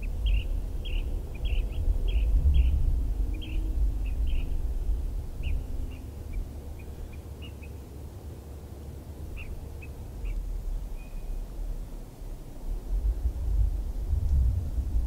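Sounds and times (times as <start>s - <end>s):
small bird chirping: 0.0s - 7.8s, 9.3s - 11.5s
steady low rumble: 0.0s - 15.0s.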